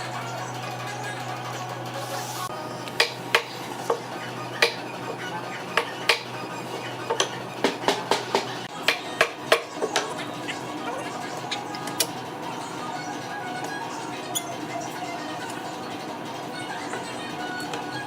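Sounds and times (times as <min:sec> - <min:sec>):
hand tools knocking on wood: 0:07.6 - 0:09.7.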